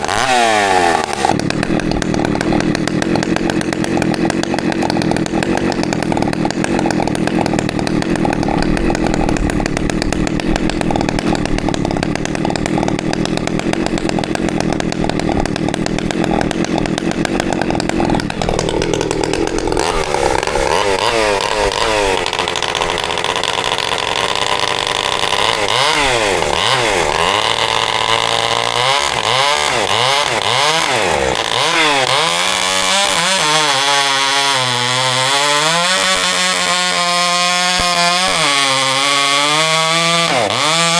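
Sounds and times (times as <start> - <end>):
chainsaw running: 0.0 - 40.9.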